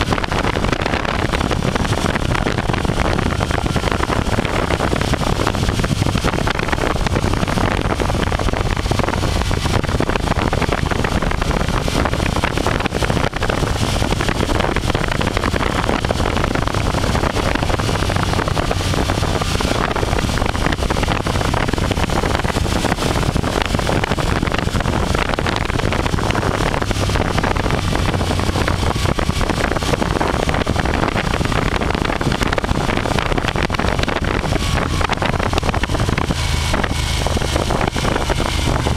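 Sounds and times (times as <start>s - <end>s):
motorcycle engine drone: 0.0s - 38.9s
wind rushing over microphone: 0.0s - 38.9s.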